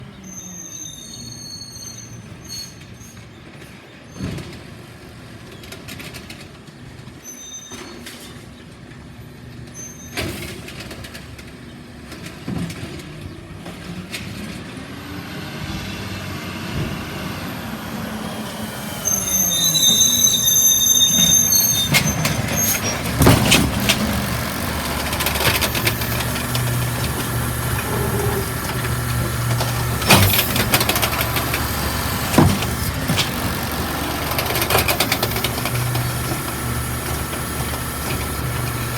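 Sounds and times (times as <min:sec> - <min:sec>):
high squeals: 0:00.2 - 0:03.2, 0:15.3 - 0:38.9
recycling truck engine running: 0:10.4 - 0:38.9.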